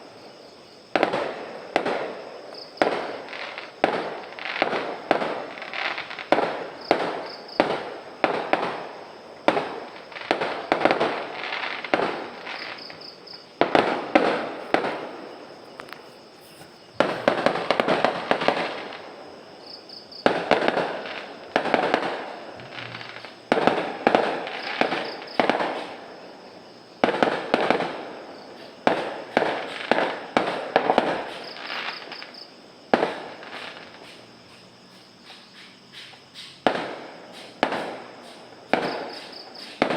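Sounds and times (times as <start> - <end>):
fireworks bangs: 0.9 - 26.3, 26.9 - 34.3, 36.6 - 39.9.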